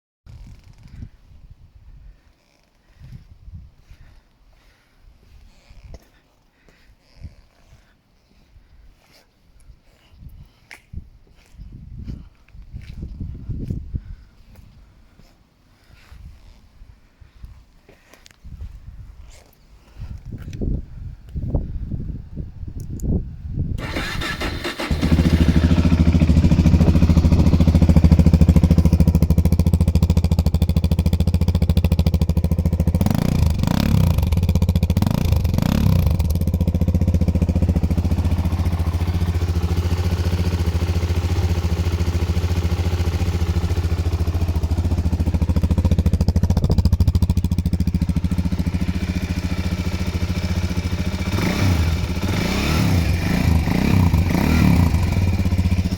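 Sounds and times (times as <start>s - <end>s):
motorcycle engine idling: 23.8s - 55.9s.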